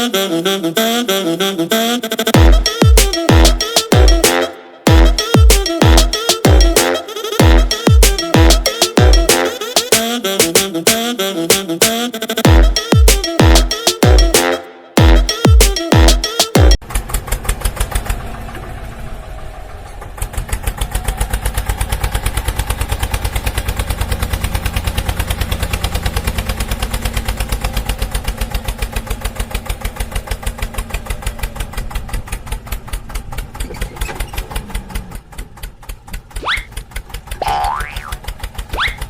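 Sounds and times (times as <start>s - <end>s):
diesel engine chugging: 0.0s - 11.2s, 15.0s - 39.0s.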